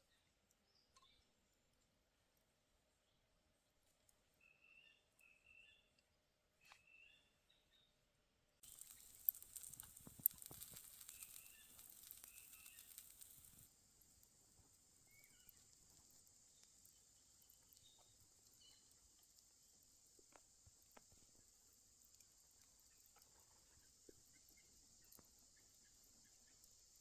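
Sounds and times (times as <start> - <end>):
sharp pops: 8.6 - 13.7
faint crackling hiss: 8.6 - 27.0
small birds chirping: 8.6 - 27.0.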